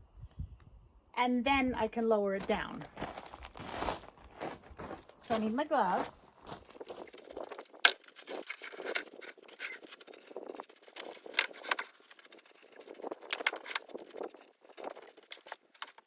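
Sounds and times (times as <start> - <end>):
clicks taps and scrapes of handling: 6.8 - 16.0.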